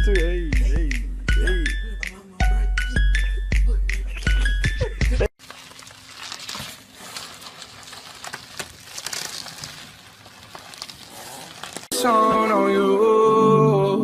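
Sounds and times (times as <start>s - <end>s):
bubble wrap crinkling and rustling: 5.4s - 11.9s.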